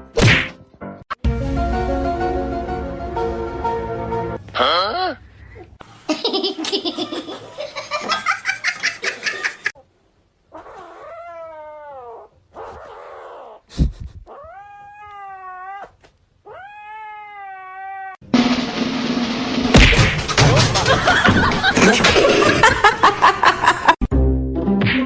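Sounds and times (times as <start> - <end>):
cat meowing: 14.3 - 18.2.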